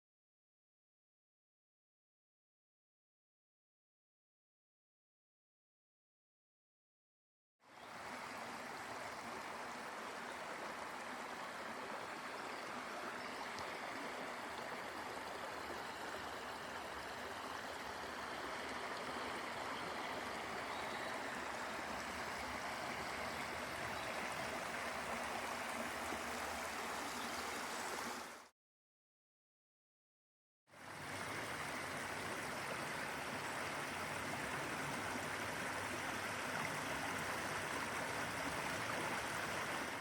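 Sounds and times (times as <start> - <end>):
stream water running: 7.6 - 28.5, 30.7 - 40.0.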